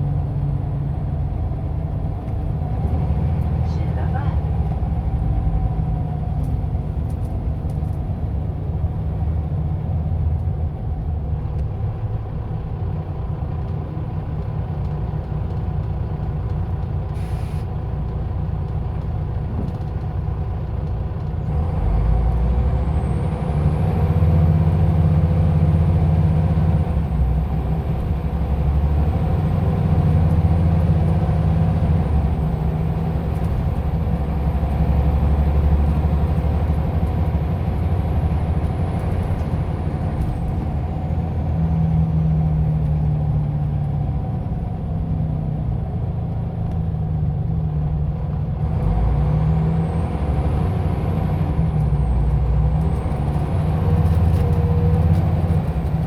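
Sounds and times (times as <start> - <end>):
bus engine drone: 0.0 - 56.0
air brake hiss: 17.2 - 17.7.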